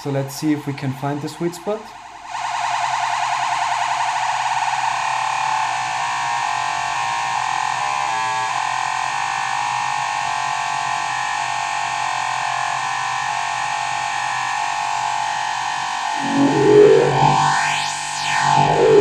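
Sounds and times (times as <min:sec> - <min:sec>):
distorted synthesizer drone: 0:16.1 - 0:19.0.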